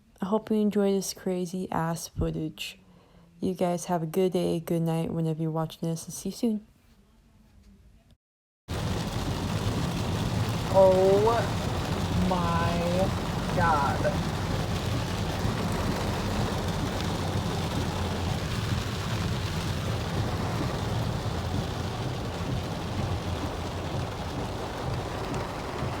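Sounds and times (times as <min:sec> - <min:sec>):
car and tyres rumbling: 0:08.7 - 0:26.0
rain and water spray hissing: 0:08.7 - 0:26.0.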